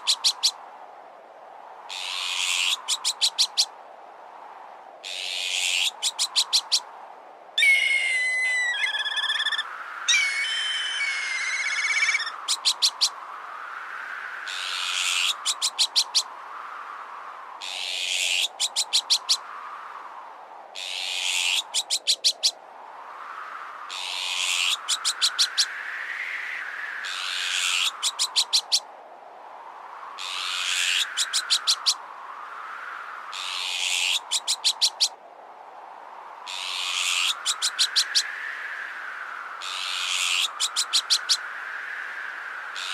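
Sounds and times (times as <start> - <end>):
howling wind: 0.0 - 42.9
kite whistled call: 7.6 - 13.2
magpie alarm calls: 7.6 - 13.2, 36.5 - 38.2, 39.6 - 41.4.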